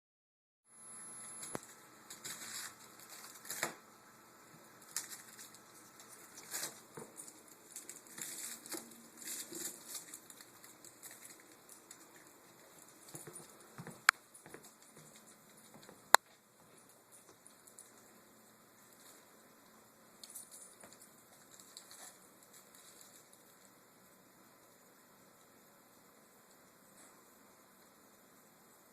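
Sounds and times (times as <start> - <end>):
candy wrappers crinkling: 2.1 - 3.8, 4.7 - 13.7.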